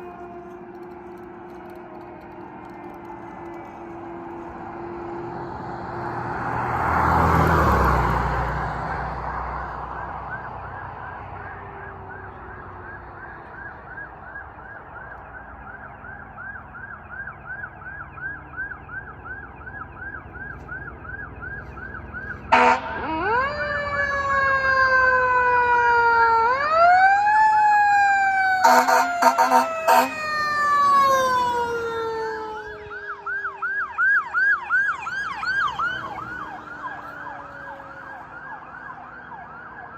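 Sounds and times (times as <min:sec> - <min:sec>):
vehicle passing: 0:00.0 - 0:14.9, 0:16.4 - 0:39.9
wailing siren: 0:00.0 - 0:39.9
electronic siren yelping: 0:09.8 - 0:39.9
air horn blasts: 0:22.5 - 0:23.4, 0:28.6 - 0:30.4.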